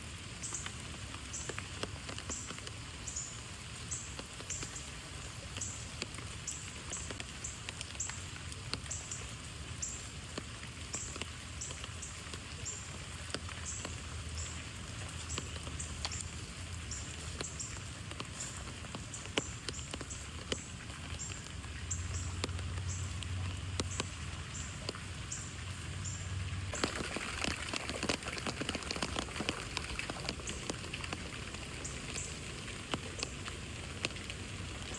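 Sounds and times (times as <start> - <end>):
rain pattering: 0.0 - 34.9
low steady rumble: 13.7 - 26.8.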